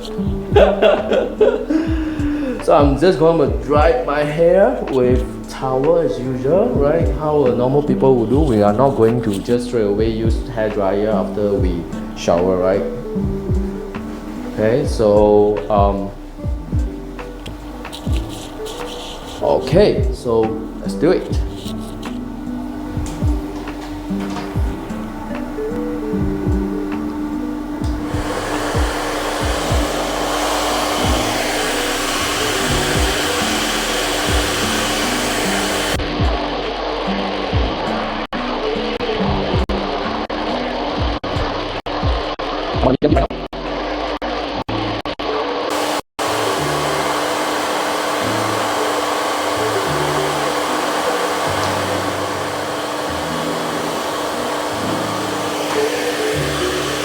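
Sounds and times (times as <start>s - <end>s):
hair dryer blowing: 0.0s - 4.3s, 5.0s - 36.0s, 45.7s - 57.0s
music with thudding beat: 0.0s - 43.5s.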